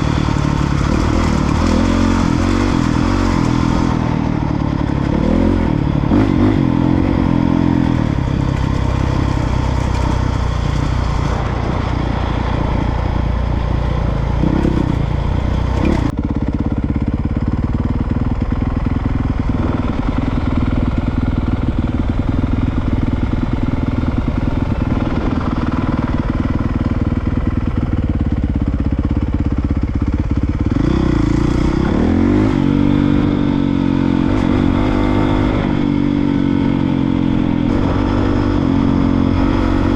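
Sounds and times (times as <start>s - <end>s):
dirtbike engine revving: 0.0s - 16.5s, 30.2s - 39.9s.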